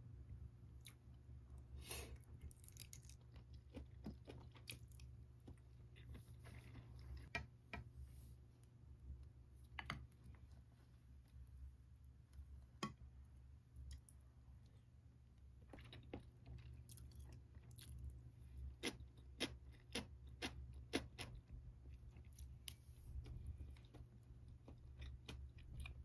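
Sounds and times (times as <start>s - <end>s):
low steady hum: 0.0s - 26.0s
person chewing food: 0.7s - 7.9s, 13.8s - 26.0s.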